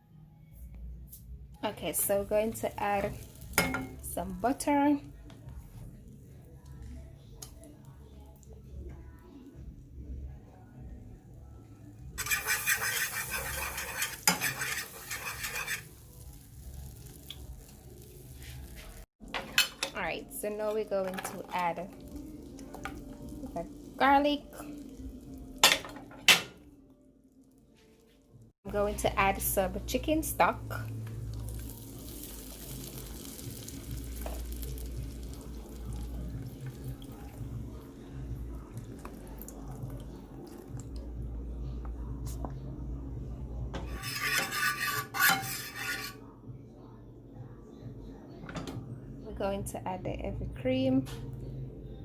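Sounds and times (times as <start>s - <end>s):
utensil scraping in a pan: 12.2s - 16.3s, 43.8s - 46.2s
melting butter sizzling: 12.2s - 19.1s, 29.0s - 37.5s
low steady hum: 28.7s - 43.8s
stock simmering and bubbling: 30.7s - 41.4s.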